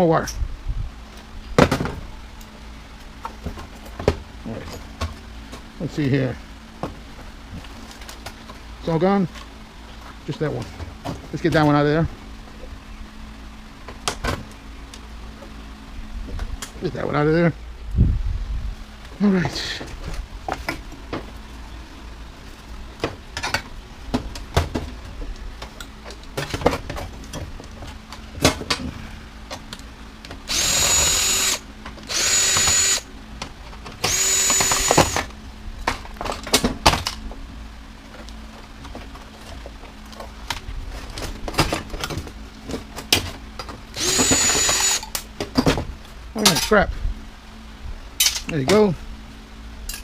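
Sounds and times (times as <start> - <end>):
power drill whining: 30.5 - 33.1, 34.0 - 35.3, 44.0 - 45.1.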